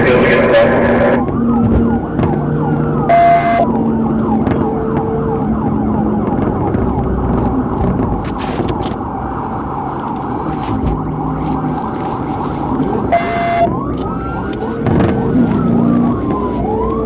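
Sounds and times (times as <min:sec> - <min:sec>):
police siren yelping: 0:00.0 - 0:07.8, 0:09.0 - 0:17.0
steady vehicle hum: 0:00.0 - 0:17.0.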